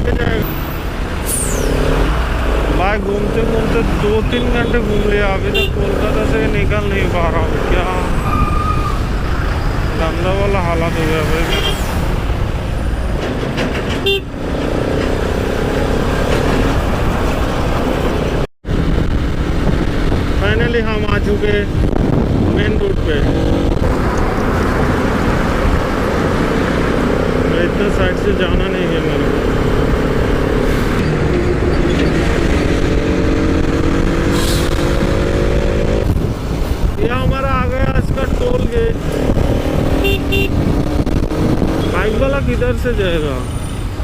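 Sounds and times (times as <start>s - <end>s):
motorcycle riding: 0.0s - 44.0s
traffic: 0.0s - 44.0s
wind: 0.0s - 44.0s
vehicle horn toot: 5.5s - 5.8s, 14.0s - 14.3s, 40.0s - 40.6s
motorcycle engine rumble: 36.0s - 43.4s.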